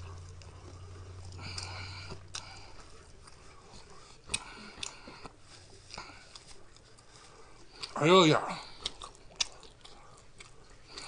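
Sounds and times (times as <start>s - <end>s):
man chewing noodles: 0.0s - 11.0s
paper napkin rustle: 5.3s - 7.8s.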